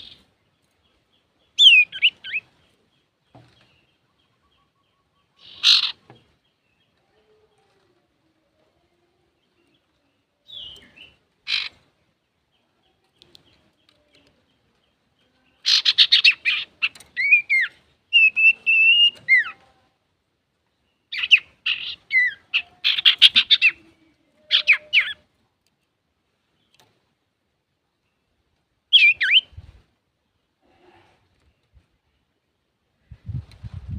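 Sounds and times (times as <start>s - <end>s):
bird chattering song: 0.0s - 7.0s, 9.4s - 19.7s, 20.8s - 25.3s, 28.9s - 29.8s
brief bird calls: 1.6s - 2.5s, 4.1s - 6.3s, 10.5s - 11.8s, 15.6s - 19.6s, 21.1s - 25.2s.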